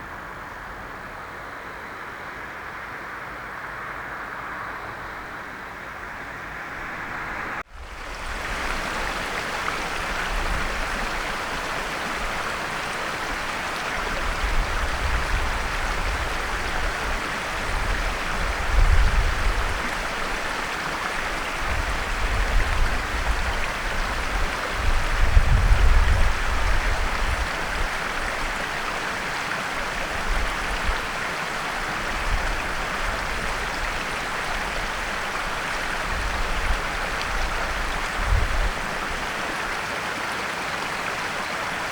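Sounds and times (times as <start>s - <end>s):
flowing water rushing: 3.2s - 41.9s
low wind-like rumbles: 14.2s - 19.9s, 21.6s - 28.5s, 32.1s - 39.2s.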